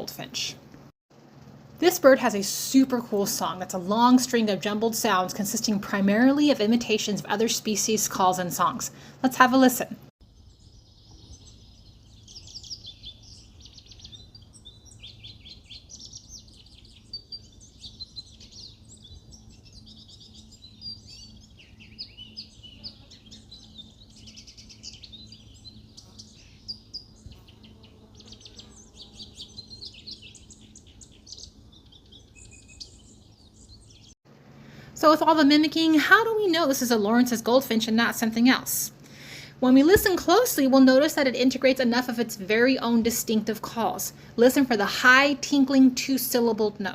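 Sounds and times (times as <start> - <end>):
low background hum: 0.0 - 46.9
finch singing jumbled song: 10.2 - 34.2.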